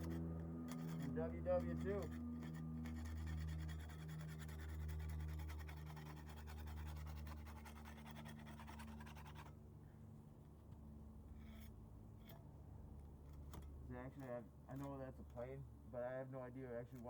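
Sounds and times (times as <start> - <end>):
airplane engine drone: 0.0 - 5.7.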